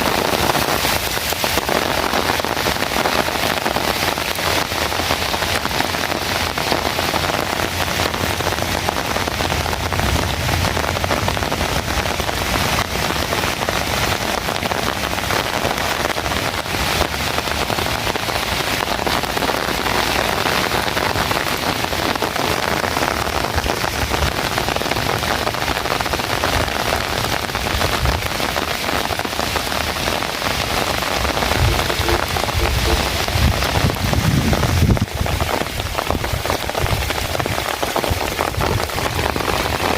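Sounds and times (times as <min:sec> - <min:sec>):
heavy rain falling: 0:00.0 - 0:39.9
low rumbling: 0:30.6 - 0:35.4.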